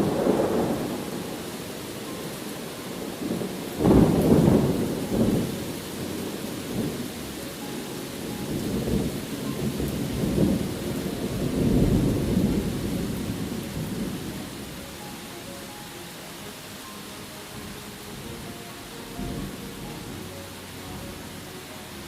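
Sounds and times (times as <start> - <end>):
rolling thunder: 0.0 - 7.1, 8.4 - 14.8, 19.1 - 20.2
steady rain: 0.0 - 22.0.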